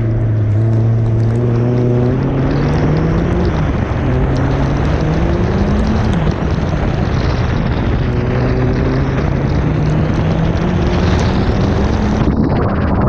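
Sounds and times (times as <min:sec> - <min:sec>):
car engine running: 0:00.0 - 0:13.0
wind buffeting: 0:00.0 - 0:13.0.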